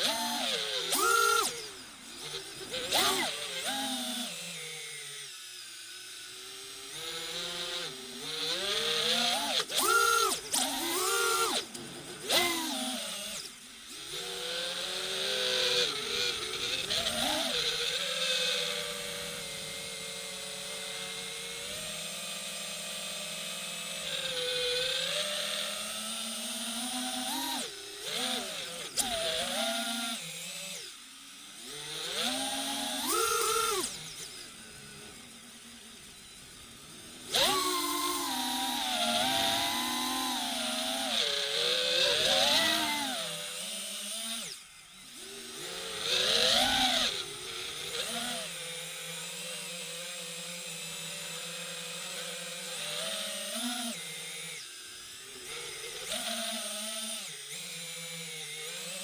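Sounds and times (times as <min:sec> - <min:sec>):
drone motors whining: 0:00.0 - 0:59.0.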